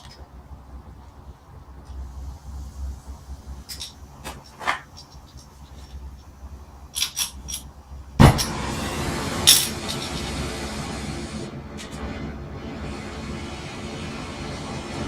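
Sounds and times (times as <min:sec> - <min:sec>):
torch igniting pop: 0:08.2 - 0:10.4
torch hissing: 0:08.2 - 0:15.0.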